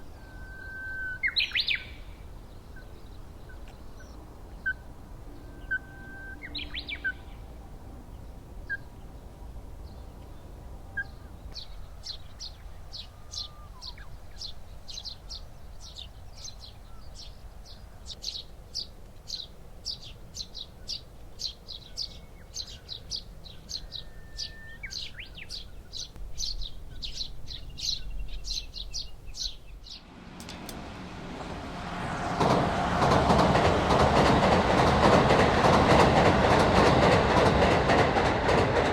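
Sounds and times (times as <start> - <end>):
small birds chirping: 0.0 - 30.5
train passing rumble: 0.0 - 38.9.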